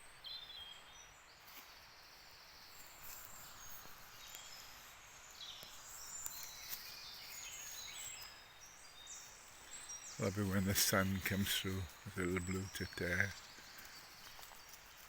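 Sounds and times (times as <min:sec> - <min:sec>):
songbirds singing: 0:00.0 - 0:15.0
faint clicks: 0:05.6 - 0:06.9.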